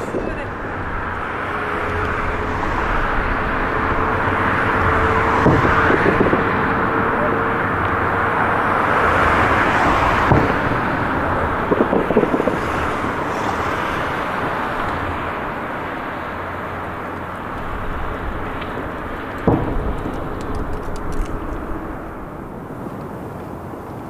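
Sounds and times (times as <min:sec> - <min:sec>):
steady rumble: 0:00.0 - 0:23.6
distant fireworks booming: 0:04.6 - 0:15.8, 0:16.8 - 0:23.0.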